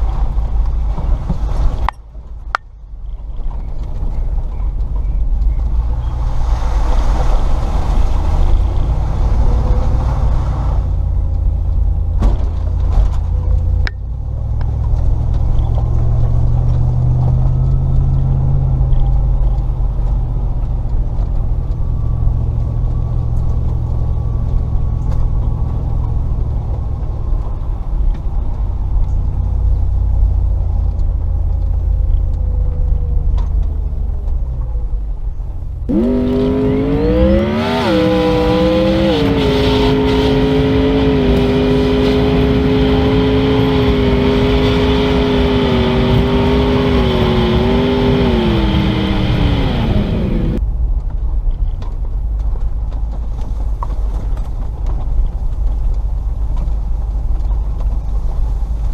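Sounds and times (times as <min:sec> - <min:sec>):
car engine rumbling at low speed: 0:00.0 - 0:58.9
rushing noise: 0:35.9 - 0:50.6.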